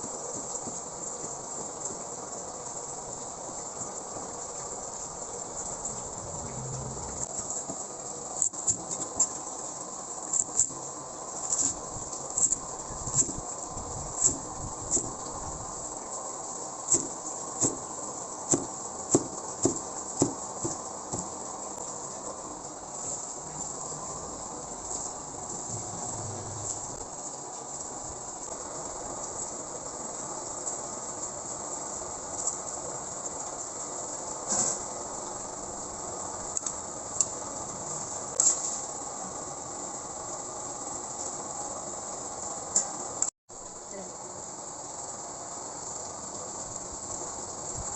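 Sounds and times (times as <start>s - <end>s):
steady hiss: 0.0s - 47.9s.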